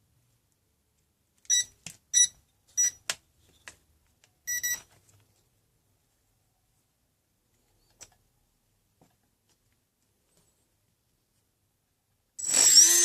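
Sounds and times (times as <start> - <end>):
electronic beeps through a motor: 12.4 - 13.0.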